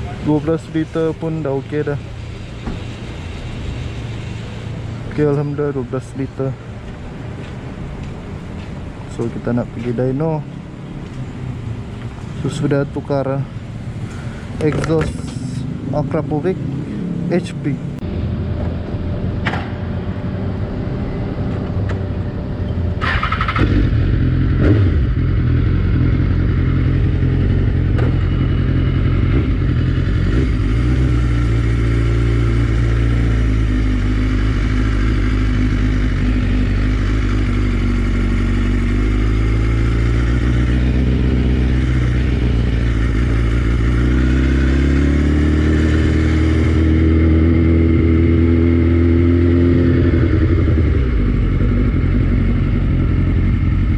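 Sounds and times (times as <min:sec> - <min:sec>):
motorcycle engine revving: 0:22.6 - 0:53.9.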